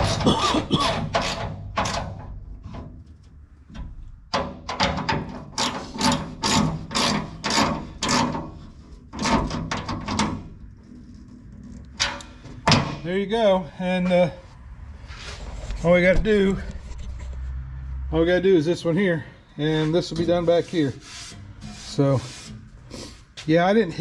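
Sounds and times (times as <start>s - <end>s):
wrench tightening bolt: 4.8s - 8.4s.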